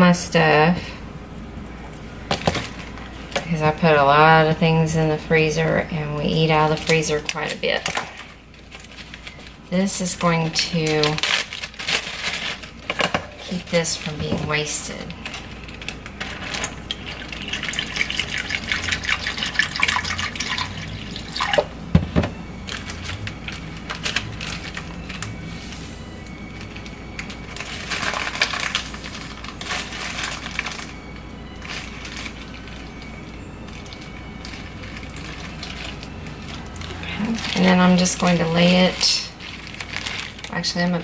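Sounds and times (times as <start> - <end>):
plastic bag rustling: 0.9 - 41.0
broth pouring into plastic bag: 13.5 - 21.7, 22.7 - 40.7.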